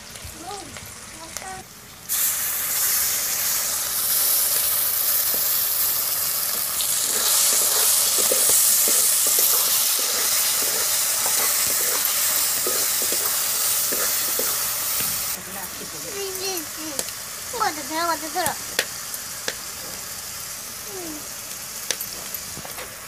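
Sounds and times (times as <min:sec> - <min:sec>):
loud sizzling in hot oil: 0:00.0 - 0:23.0
metal spatula scraping pan: 0:07.0 - 0:14.6.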